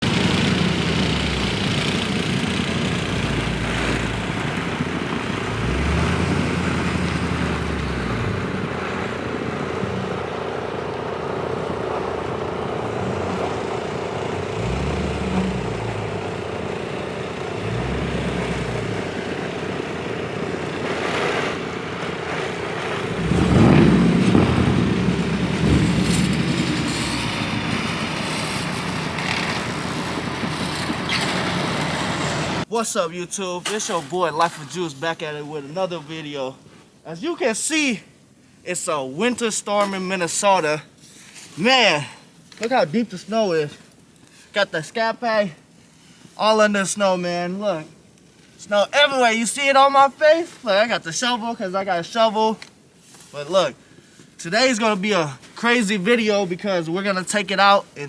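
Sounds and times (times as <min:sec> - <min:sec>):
car engine running: 0:00.0 - 0:32.7
steady hiss: 0:32.6 - 0:58.0.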